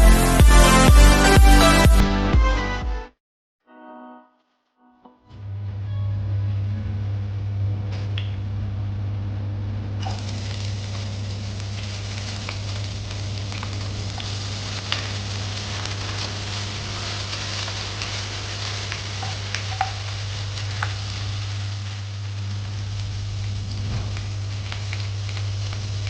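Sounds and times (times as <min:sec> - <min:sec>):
low hum: 0:05.3 - 0:26.0
food sizzling in hot oil: 0:10.0 - 0:26.0.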